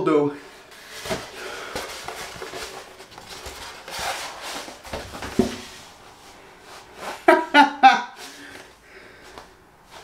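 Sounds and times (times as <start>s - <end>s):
cardboard box rustling: 0.8s - 5.9s.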